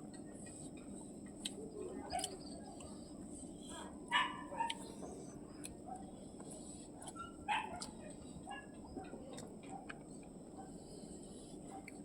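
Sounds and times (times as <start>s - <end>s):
dog barking: 4.1s - 4.9s, 7.2s - 8.8s.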